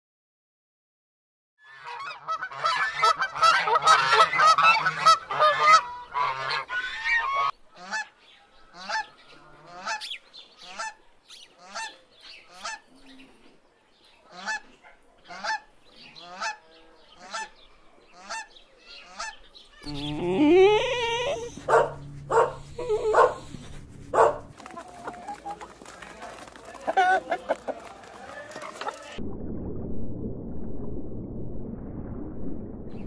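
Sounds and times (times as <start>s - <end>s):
geese honking: 1.6s - 8.1s, 8.7s - 11.0s, 11.6s - 12.8s, 15.3s - 20.1s, 20.8s - 29.2s.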